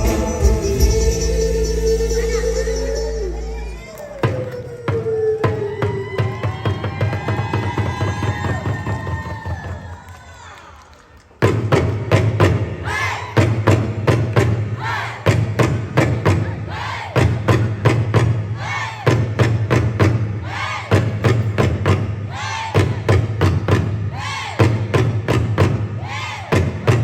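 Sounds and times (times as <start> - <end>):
heavy low drum beats: 0.0 - 4.5
drum ensemble playing: 0.0 - 4.6.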